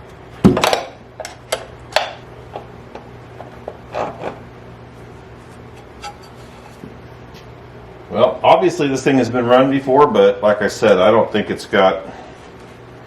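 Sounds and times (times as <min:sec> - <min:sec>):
metal scrape: 0:05.4 - 0:06.8.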